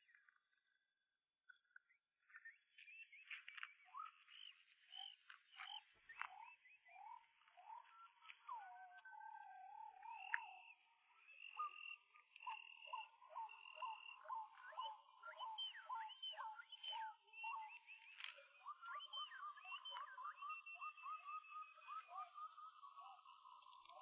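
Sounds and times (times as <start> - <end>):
birds singing: 2.3 - 24.0.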